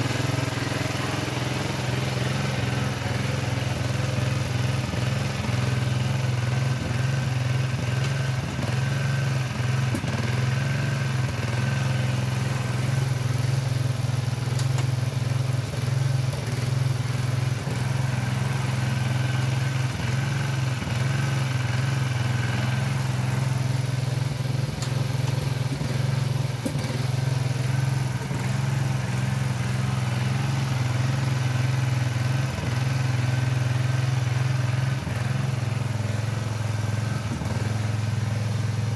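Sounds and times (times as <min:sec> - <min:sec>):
small tractor engine humming: 0:00.0 - 0:38.9.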